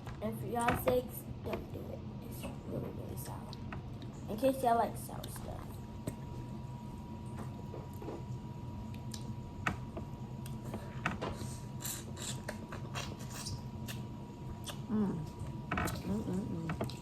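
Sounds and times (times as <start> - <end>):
wet chewing and smacking: 11.9 - 16.1.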